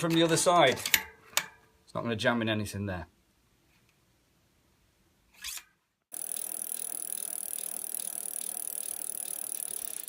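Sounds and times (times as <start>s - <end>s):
bicycle hub ratchet ticking: 6.1s - 10.0s.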